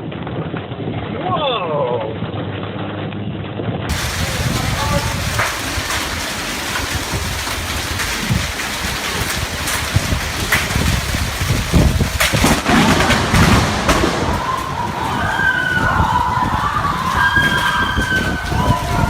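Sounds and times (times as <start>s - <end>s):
crackles: 3.9s - 19.0s
heavy rain: 3.9s - 19.0s
thunder rumble: 3.9s - 19.0s.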